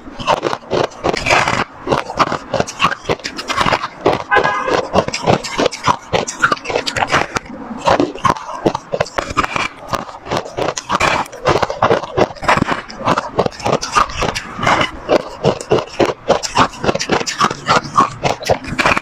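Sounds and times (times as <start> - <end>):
ice being chewed: 0.0 - 19.0.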